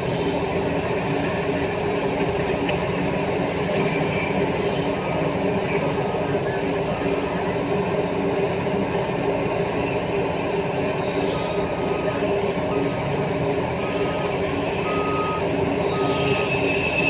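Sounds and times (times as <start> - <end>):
diesel engines running: 0.0 - 17.0
reversing alarm beeping: 13.7 - 17.0.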